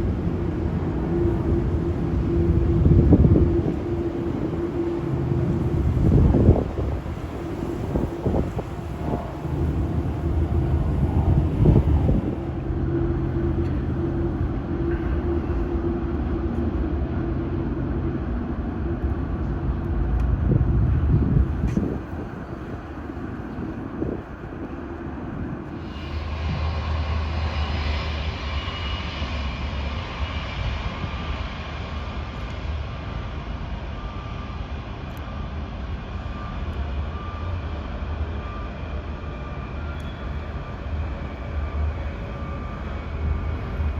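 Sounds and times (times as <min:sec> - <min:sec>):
wind gusts on microphone: 0:00.0 - 0:33.5
jet engines rumbling and whining: 0:00.0 - 0:43.9.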